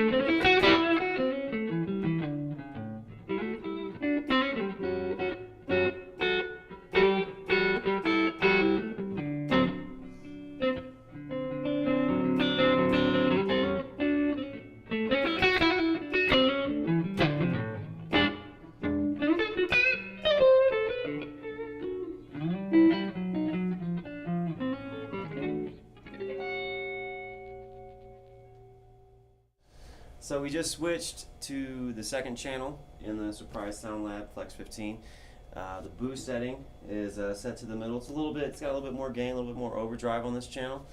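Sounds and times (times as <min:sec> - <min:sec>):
electric guitar playing blues: 0:00.0 - 0:29.3.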